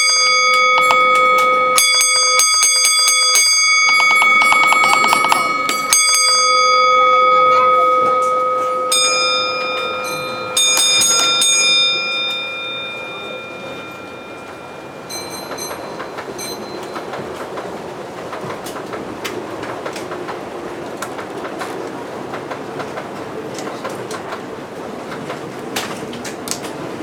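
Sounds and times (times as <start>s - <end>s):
bell ringing: 0.0s - 17.2s
model train wheels clacking: 0.5s - 6.4s.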